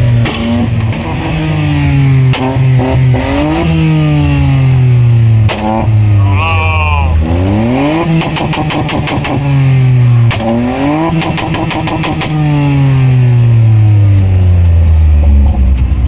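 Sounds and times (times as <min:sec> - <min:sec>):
engine revving hard: 0:00.4 - 0:13.6
exhaust crackling pops: 0:05.4 - 0:06.0, 0:10.3 - 0:10.5.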